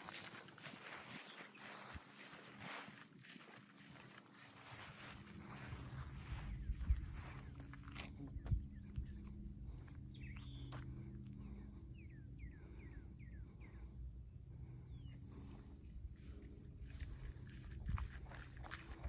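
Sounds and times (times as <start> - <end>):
bird chirping: 6.4 - 15.8.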